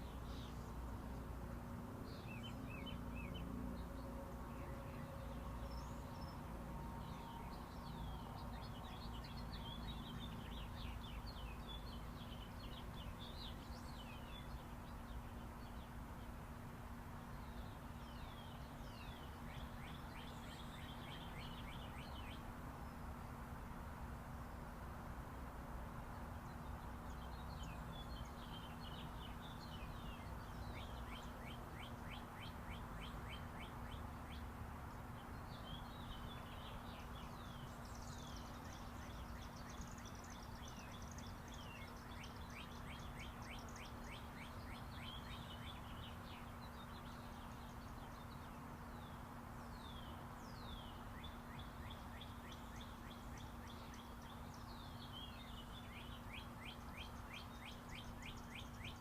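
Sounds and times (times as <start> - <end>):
small birds chirping and trilling: 0.0 - 1.2, 2.0 - 16.5, 17.2 - 23.4, 26.0 - 59.0
distant highway traffic: 0.0 - 59.0.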